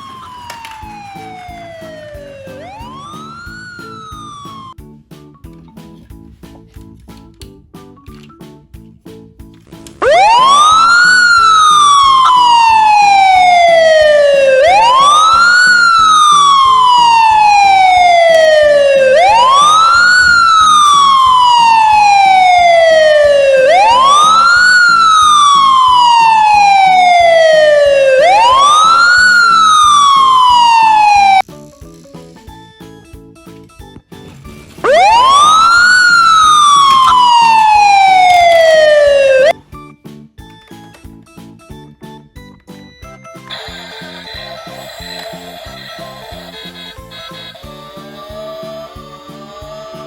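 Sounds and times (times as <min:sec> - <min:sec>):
siren wailing: 0:00.0 - 0:04.8, 0:10.0 - 0:31.4, 0:34.8 - 0:39.6, 0:43.5 - 0:50.0.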